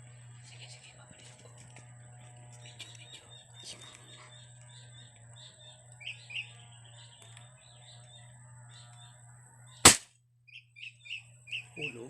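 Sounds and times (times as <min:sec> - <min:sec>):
small birds chirping: 0:00.0 - 0:12.0
air rifle shot: 0:09.9 - 0:10.1.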